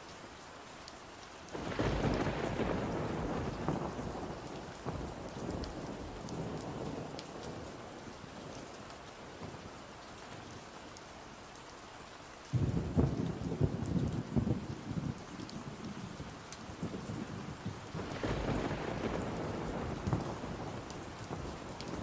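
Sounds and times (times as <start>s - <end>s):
steady rain: 0.0s - 22.0s
thunder rumble: 1.6s - 7.5s, 12.6s - 22.0s.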